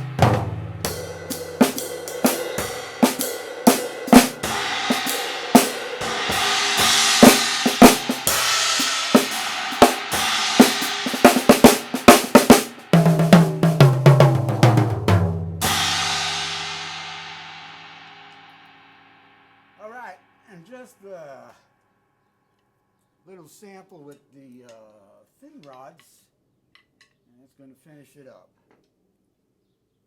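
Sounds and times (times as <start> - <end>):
snare drum strokes: 0.0 - 17.9
descending drum strokes: 0.0 - 18.2
cymbal crash: 0.0 - 19.7.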